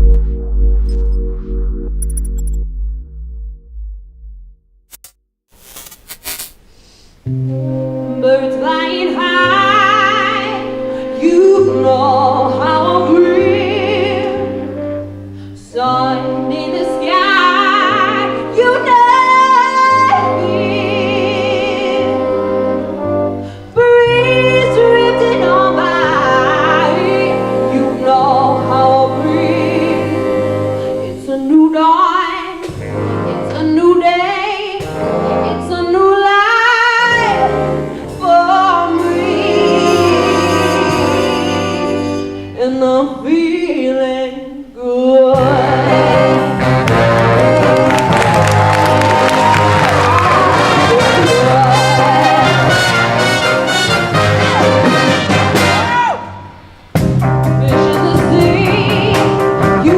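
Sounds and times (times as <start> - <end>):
swing orchestra playing: 15.9 - 23.4, 24.0 - 31.1, 32.7 - 42.6, 45.4 - 56.0
person singing: 42.8 - 53.0.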